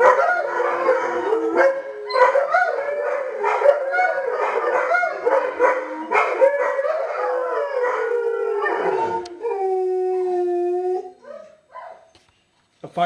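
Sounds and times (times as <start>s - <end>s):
dogs barking and yipping: 0.0s - 9.4s, 11.2s - 12.1s
dogs howling together: 0.0s - 12.1s.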